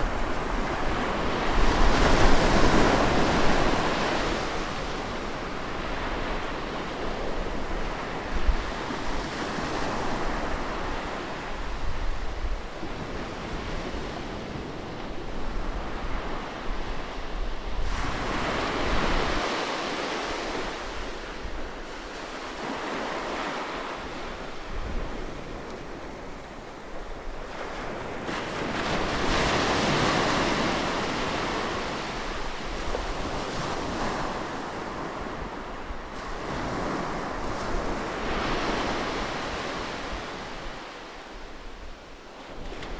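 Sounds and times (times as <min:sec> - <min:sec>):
sea waves breaking on shore: 0:00.0 - 0:12.1, 0:12.8 - 0:42.9
wind noise: 0:00.0 - 0:22.0, 0:24.0 - 0:40.8.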